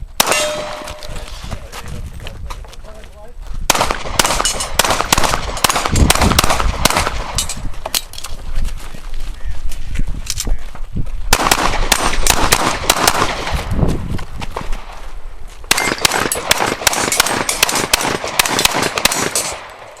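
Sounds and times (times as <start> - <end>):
rapid pistol gunfire: 3.7 - 7.5, 11.3 - 13.6, 15.7 - 19.7.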